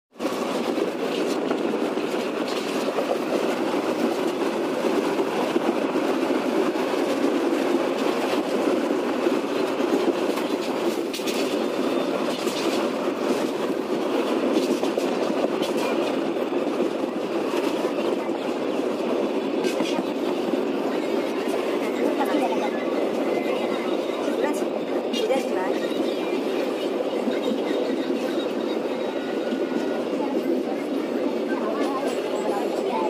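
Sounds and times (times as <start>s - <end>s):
train wheels rumbling on rails: 0.1s - 33.0s.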